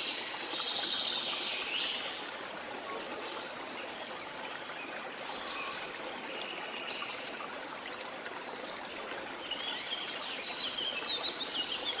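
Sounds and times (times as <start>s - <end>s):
birds singing: 9.4s - 12.0s.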